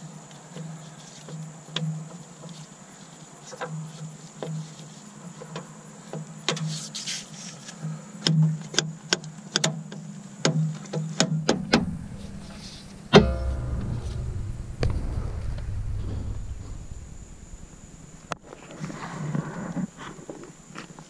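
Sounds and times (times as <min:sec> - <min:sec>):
loud ringing metal clank: 0:11.6 - 0:18.4
low rumble: 0:11.6 - 0:18.4.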